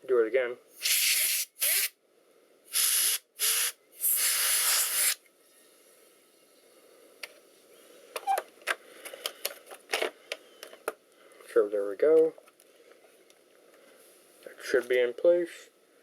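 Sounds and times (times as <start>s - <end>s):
compressed air hissing: 0.8s - 2.0s, 2.7s - 5.2s.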